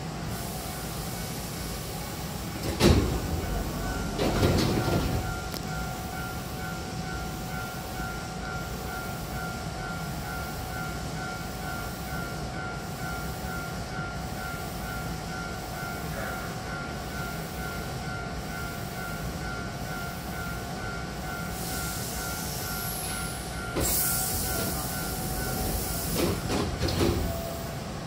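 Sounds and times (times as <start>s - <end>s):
train humming with held tones: 0.0s - 28.0s
loud hiss: 21.5s - 26.6s.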